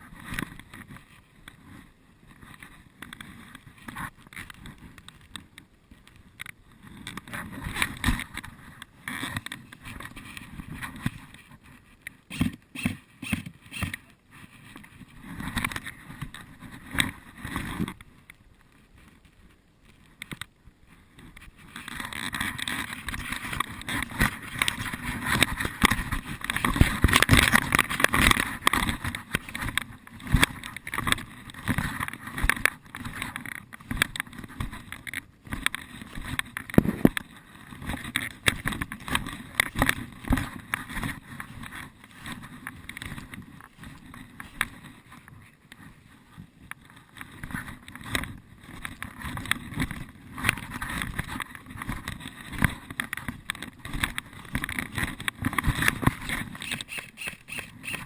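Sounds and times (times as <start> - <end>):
rustling and crackling undergrowth: 0.0 - 58.0
sharp clicks: 55.6 - 58.0.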